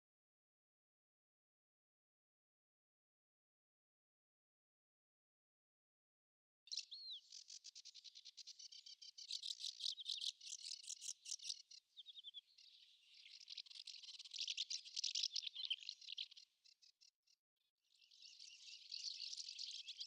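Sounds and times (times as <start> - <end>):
songbird trilling: 6.7 - 16.4.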